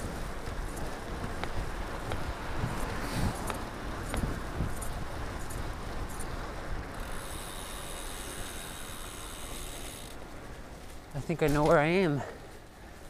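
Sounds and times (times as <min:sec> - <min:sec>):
tyre and wind rumble: 0:00.0 - 0:13.0.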